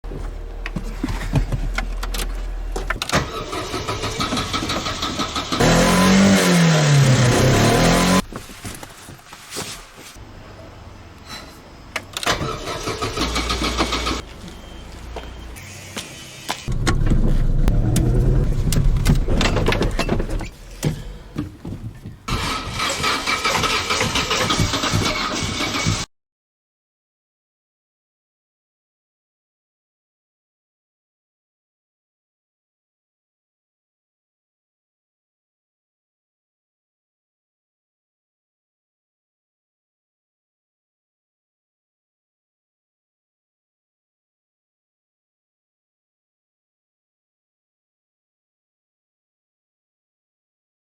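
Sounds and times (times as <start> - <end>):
car engine cranking and starting: 0.1 - 8.2, 12.0 - 14.8, 16.7 - 26.1
starter motor cranking: 12.2 - 14.2
car engine sputtering: 16.7 - 26.0.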